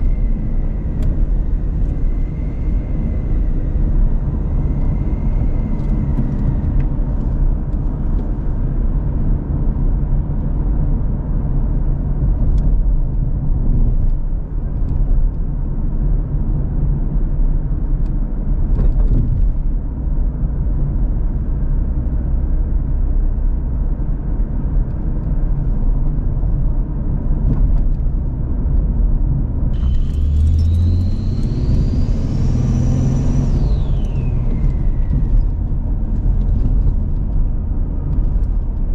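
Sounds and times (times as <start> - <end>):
high whine: 0.0 - 9.5, 29.7 - 38.9
car engine and road rumble: 0.0 - 38.9.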